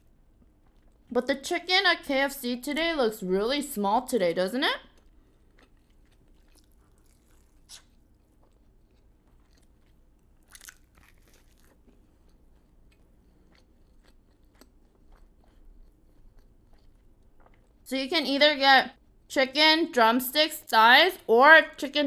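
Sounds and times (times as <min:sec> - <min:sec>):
chewing and crunching food: 0:00.0 - 0:01.6, 0:03.7 - 0:17.9.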